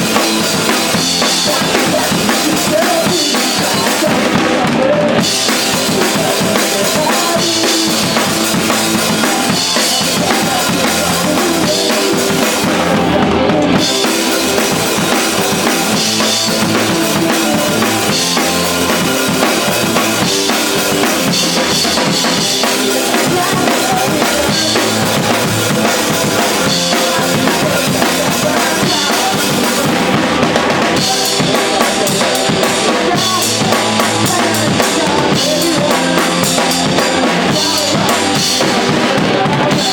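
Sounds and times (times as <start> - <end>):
drum kit kick and snare: 0.0 - 39.9
live band playing: 0.0 - 39.9.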